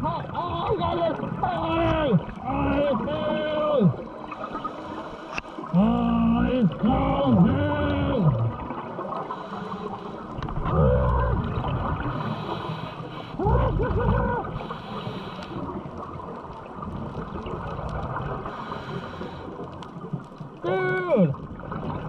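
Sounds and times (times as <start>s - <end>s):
water rushing: 0.0s - 22.0s
person crying out: 13.5s - 14.5s.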